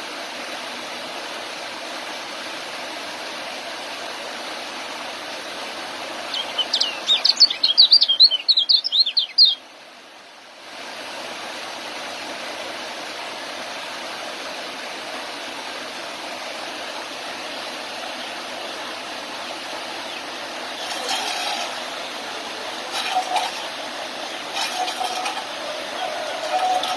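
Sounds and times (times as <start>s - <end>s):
bird twittering chirps: 6.3s - 9.6s.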